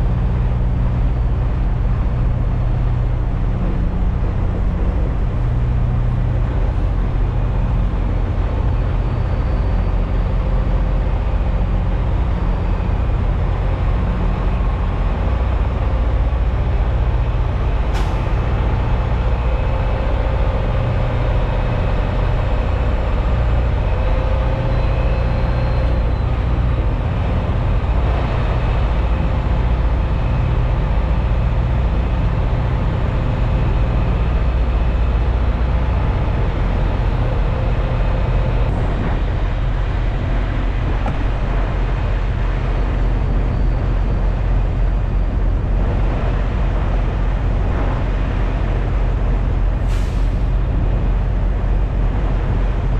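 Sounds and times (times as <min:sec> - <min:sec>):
diesel truck engine droning: 0:00.0 - 0:52.9
road noise: 0:00.0 - 0:52.9.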